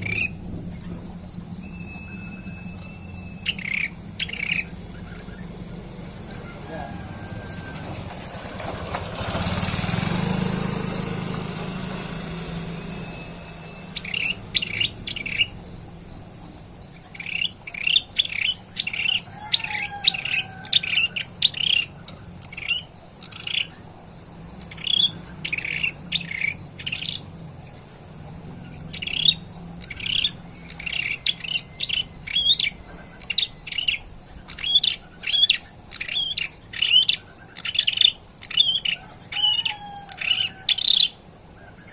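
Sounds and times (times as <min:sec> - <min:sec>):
bird chirping: 0:00.0 - 0:41.9.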